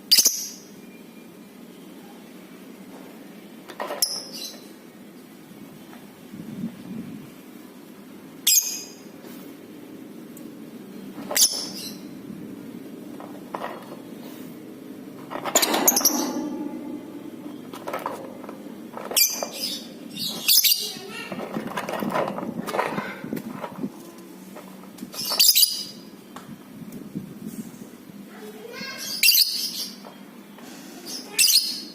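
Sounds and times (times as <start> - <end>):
faint low hum: 12.0 - 25.1.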